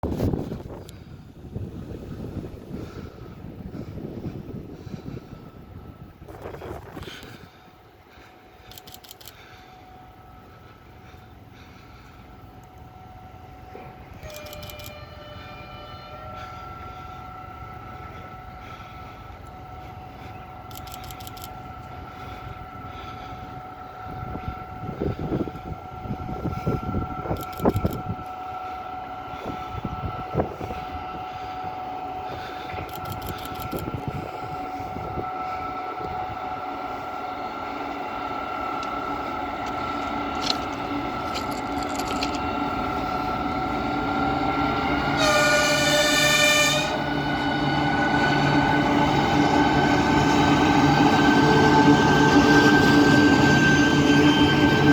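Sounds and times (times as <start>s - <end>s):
locomotive engine rumble: 0.0s - 54.9s
steady high whine: 0.1s - 54.9s
locomotive horn blast: 13.5s - 17.7s, 41.3s - 54.9s.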